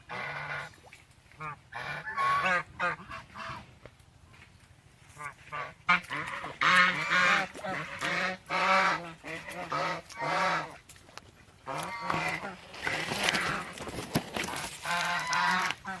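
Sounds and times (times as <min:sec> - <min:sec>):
swans honking: 0:01.4 - 0:03.7, 0:05.1 - 0:10.8, 0:11.6 - 0:16.0.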